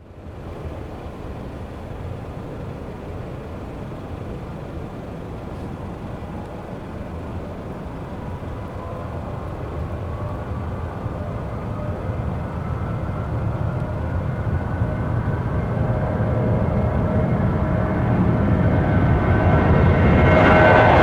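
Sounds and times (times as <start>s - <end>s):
jet engines roaring: 0.1s - 21.0s
rising engine whine: 0.1s - 21.0s.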